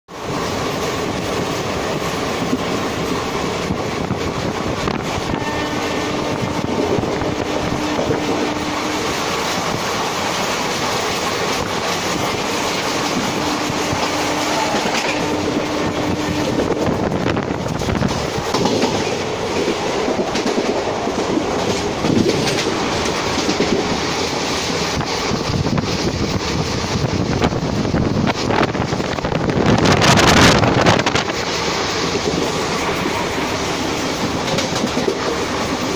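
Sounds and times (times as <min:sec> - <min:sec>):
train rumble: 0:00.1 - 0:35.9
wheels clattering over rail joints: 0:17.7 - 0:25.7.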